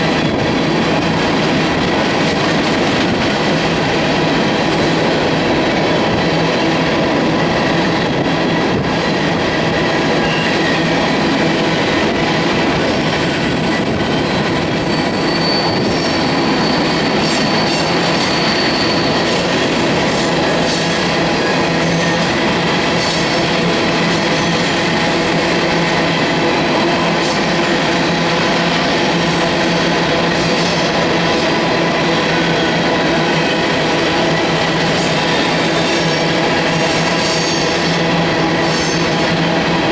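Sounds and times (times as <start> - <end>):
steel wheels rumbling on rail: 0.0 - 39.9
high wheel squeals: 9.7 - 11.8, 13.2 - 25.0.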